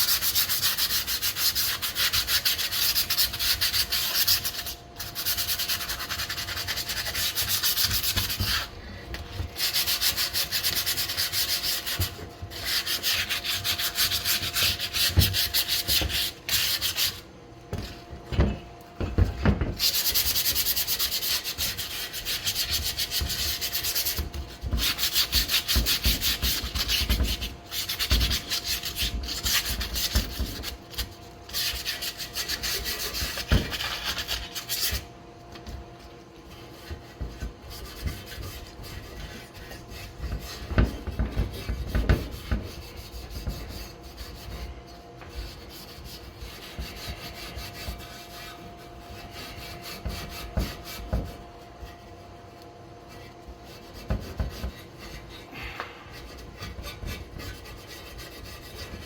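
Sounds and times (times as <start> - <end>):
abrasive pad scrubbing metal: 9.4 - 19.1.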